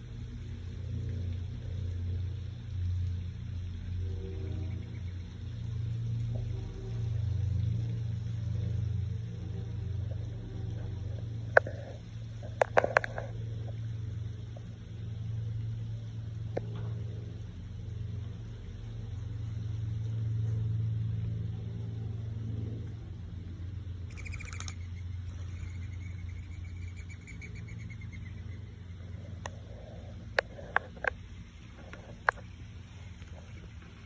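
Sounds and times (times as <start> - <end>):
steady low outdoor hum: 0.0 - 34.0
sharp clicks: 24.1 - 25.0
bird chirp: 24.1 - 29.7.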